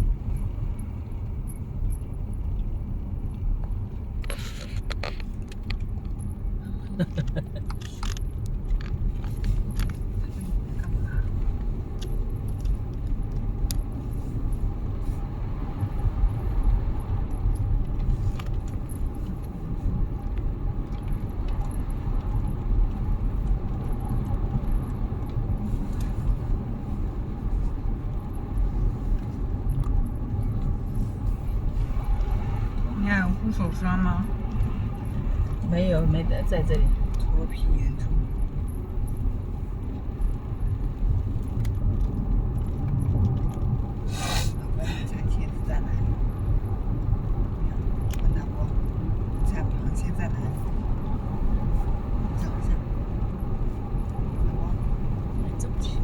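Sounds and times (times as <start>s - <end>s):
car road noise rumble: 0.0s - 56.0s
light clicking and jangling: 0.3s - 15.0s, 15.8s - 32.9s.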